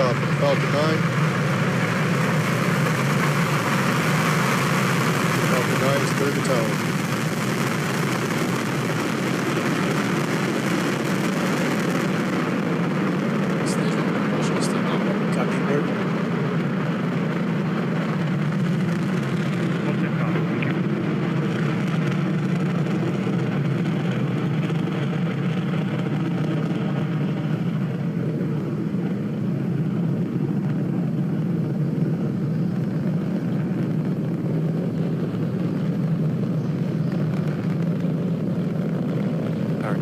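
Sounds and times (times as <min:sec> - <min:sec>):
rocket engines roaring: 0:00.0 - 0:40.0.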